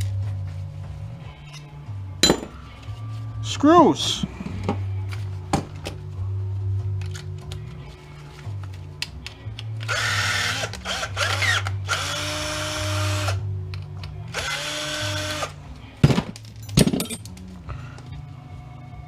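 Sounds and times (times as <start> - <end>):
power drill whine: 9.9 - 13.4, 14.4 - 15.5.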